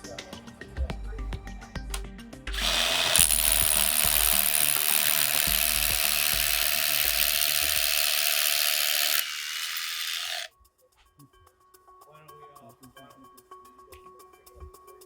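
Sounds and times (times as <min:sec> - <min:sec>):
power drill driving screws: 0:02.6 - 0:10.5.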